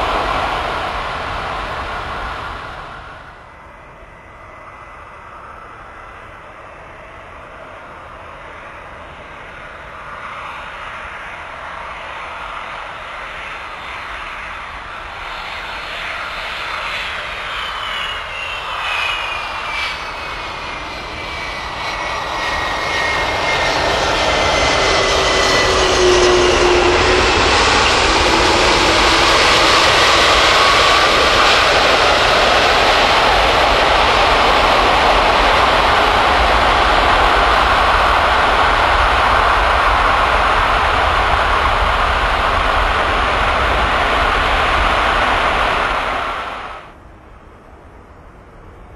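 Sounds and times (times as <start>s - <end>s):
loud steady rushing: 0.0s - 3.5s, 18.6s - 47.0s
high whine sliding down: 0.0s - 3.6s, 18.1s - 47.0s
jet airliner engine noise: 0.0s - 48.9s.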